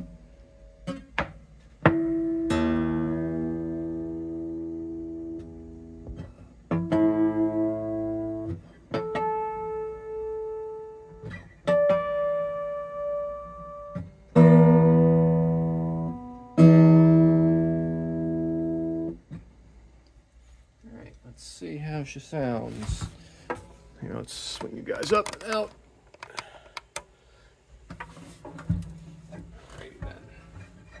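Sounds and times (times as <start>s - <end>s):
acoustic guitar chords strummed: 0.0s - 19.5s
acoustic guitar strings plucked: 0.8s - 19.4s.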